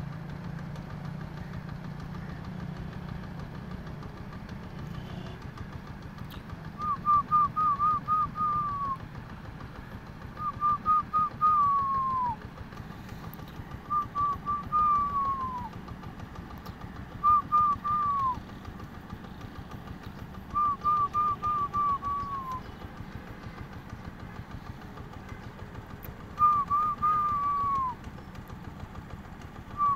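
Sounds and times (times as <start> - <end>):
bird singing whistled phrase: 6.8 - 9.0, 10.4 - 12.4, 13.9 - 15.7, 17.2 - 18.4, 20.5 - 22.8, 26.4 - 28.0.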